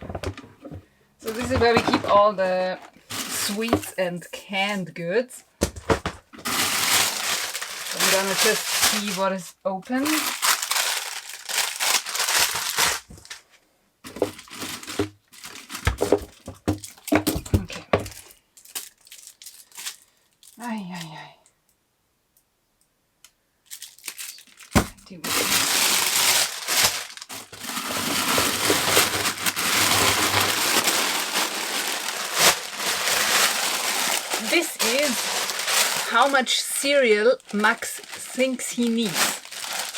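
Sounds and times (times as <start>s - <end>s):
plastic wrappers crinkling: 0.0s - 4.8s, 5.6s - 21.2s, 23.6s - 39.9s.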